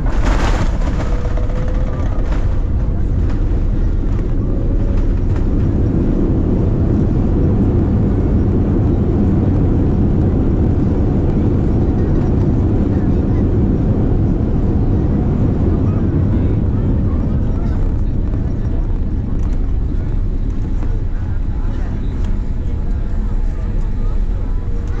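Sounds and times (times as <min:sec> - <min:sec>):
airliner engines and airflow rumble: 0:00.0 - 0:25.0.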